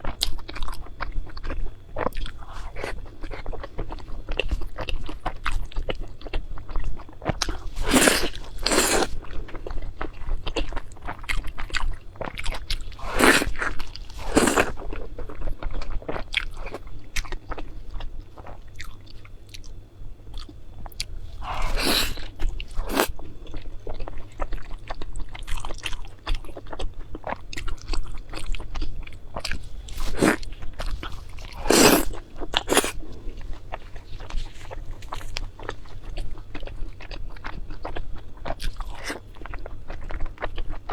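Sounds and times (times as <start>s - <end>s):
chewing: 0.0s - 19.8s, 20.4s - 40.9s
crisp crunching bites: 7.4s - 9.2s, 12.7s - 15.0s.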